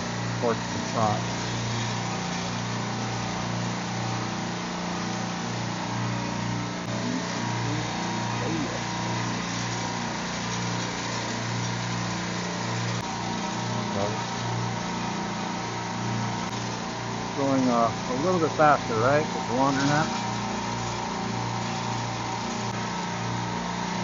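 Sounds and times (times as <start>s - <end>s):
machine room hiss: 0.0s - 24.0s
refrigeration compressors humming: 0.0s - 24.0s.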